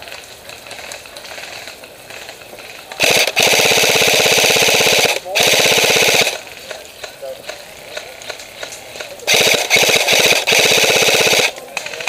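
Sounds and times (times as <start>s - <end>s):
airsoft gun firing full-auto: 3.0s - 6.4s, 7.9s - 12.0s.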